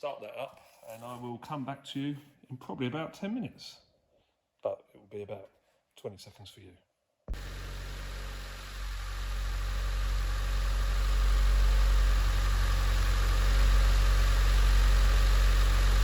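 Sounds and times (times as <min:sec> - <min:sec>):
car engine idling: 0:07.3 - 0:16.0.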